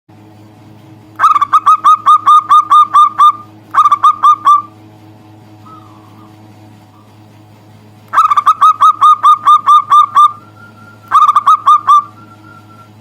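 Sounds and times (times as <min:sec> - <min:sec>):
faint steady hum: 0:00.1 - 0:13.0
dove cooing: 0:01.2 - 0:04.7, 0:08.2 - 0:13.0.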